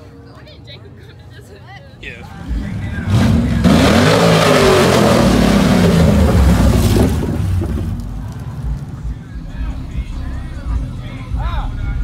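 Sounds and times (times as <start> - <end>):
vehicle engine revving: 2.3 - 9.1.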